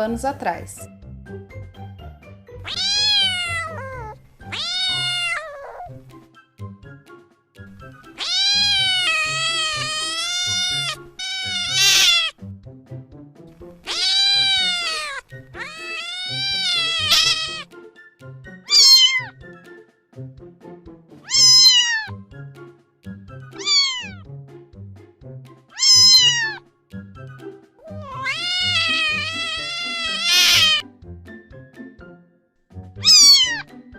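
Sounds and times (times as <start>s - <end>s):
cat meowing: 2.6s - 6.0s, 8.0s - 12.4s, 13.8s - 17.7s, 18.6s - 19.4s, 21.2s - 22.2s, 23.6s - 24.2s, 25.7s - 26.6s, 27.8s - 30.8s, 33.0s - 33.7s
background music with low beat: 12.4s - 13.8s, 19.4s - 21.3s, 24.2s - 25.7s, 30.8s - 33.0s.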